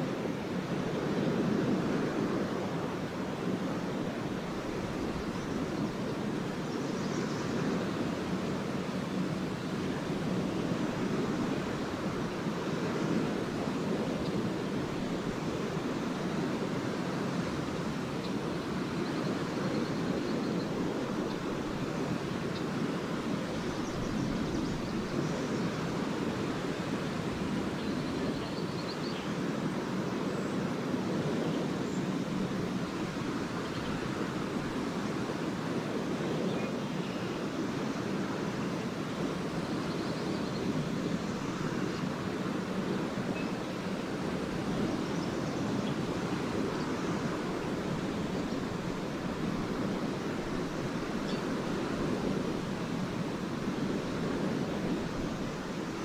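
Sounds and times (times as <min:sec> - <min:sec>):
waves washing ashore: 0:00.0 - 0:56.0.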